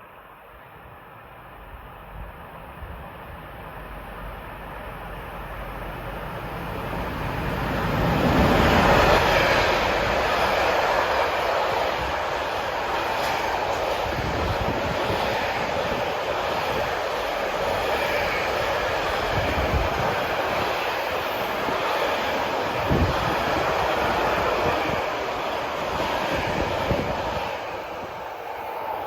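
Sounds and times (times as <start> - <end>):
freight train passing: 0.0 - 29.0.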